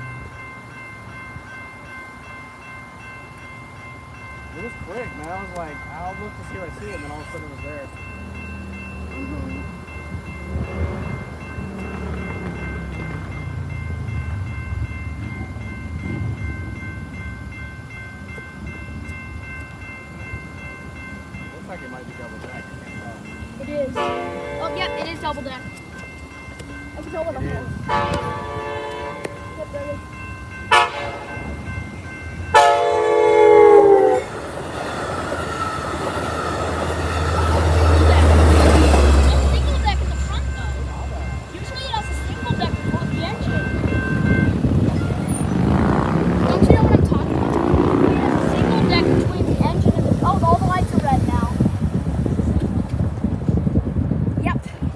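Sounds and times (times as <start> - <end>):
level crossing warning bell: 0.0 - 53.6
train rumbling: 0.0 - 54.9
train horn blast: 10.5 - 13.2, 23.9 - 25.4, 27.8 - 29.6, 30.7 - 31.6, 32.5 - 34.5, 37.2 - 49.9.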